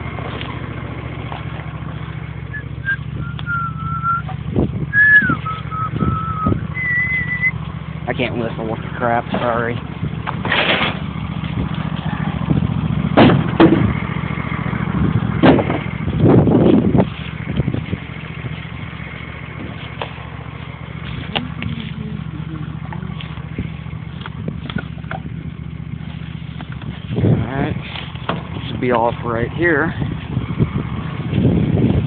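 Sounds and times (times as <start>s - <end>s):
lawn tractor engine running: 0.0s - 32.0s
loud knocks and clatters: 10.2s - 11.8s, 13.1s - 14.2s, 15.3s - 17.2s.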